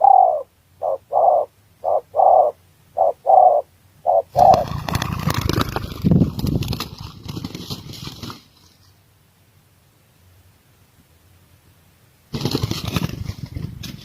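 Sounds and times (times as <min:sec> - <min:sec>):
dove cooing: 0:00.0 - 0:05.8.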